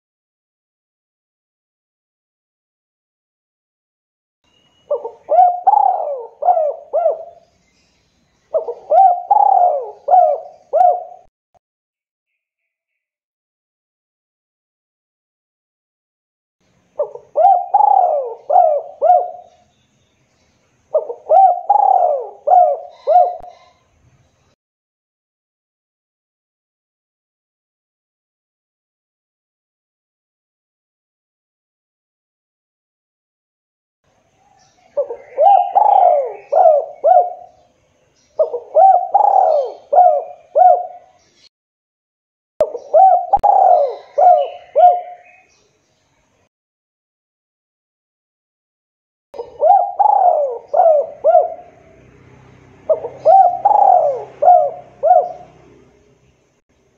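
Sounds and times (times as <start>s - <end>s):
dove cooing: 4.9s - 7.4s, 8.5s - 11.3s, 17.0s - 19.6s, 20.9s - 23.8s, 34.9s - 37.6s, 38.4s - 41.2s, 42.6s - 45.5s, 49.4s - 52.1s, 52.8s - 56.0s.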